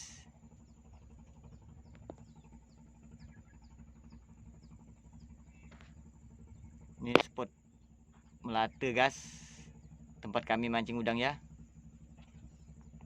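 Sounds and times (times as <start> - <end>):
low steady hum: 0.0 - 13.0
bird chirping: 1.5 - 5.8.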